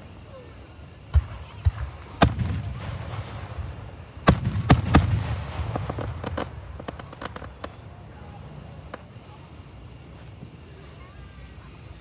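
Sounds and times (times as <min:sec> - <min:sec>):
fireworks booming: 0:01.0 - 0:09.4
fireworks crackling pops: 0:01.1 - 0:11.6.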